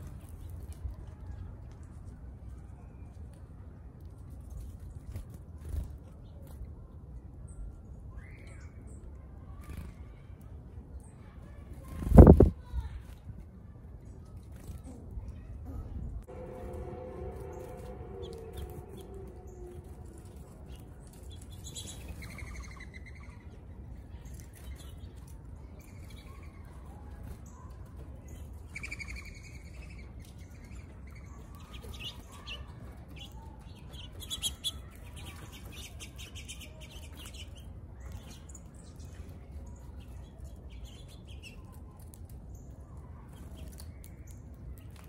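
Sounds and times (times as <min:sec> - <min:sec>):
steady low hum: 0:15.5 - 0:24.7
small birds chirping: 0:17.5 - 0:45.0.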